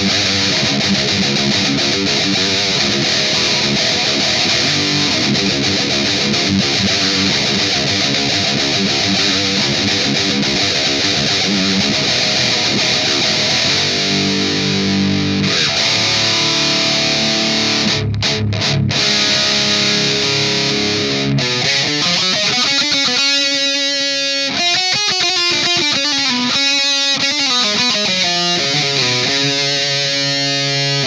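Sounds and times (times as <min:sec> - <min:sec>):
distorted electric guitar riffs: 0:00.0 - 0:31.0.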